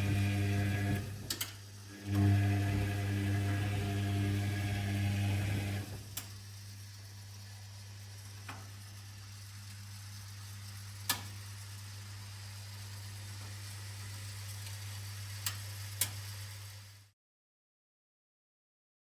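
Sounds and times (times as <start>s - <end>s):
washing machine humming: 0.0s - 17.1s.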